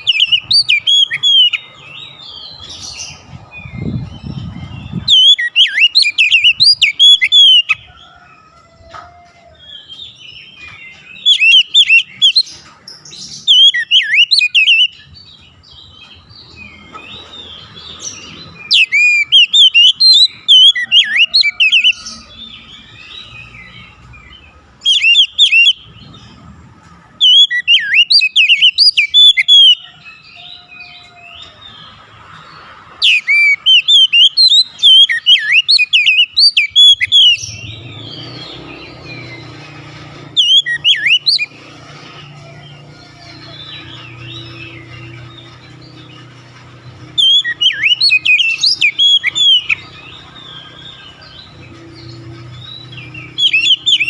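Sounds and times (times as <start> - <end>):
bird singing whistled phrases: 0.0 - 1.6, 13.4 - 15.1, 27.2 - 29.9, 33.0 - 38.6, 47.2 - 51.2
soft bird twittering: 27.2 - 54.0.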